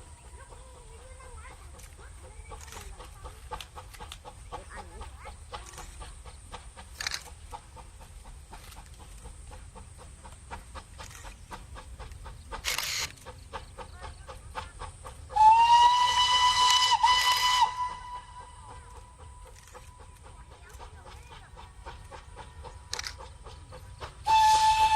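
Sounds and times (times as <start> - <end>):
steam hissing: 0.0 - 24.9
steam locomotive whistle: 15.3 - 20.1, 24.2 - 24.9.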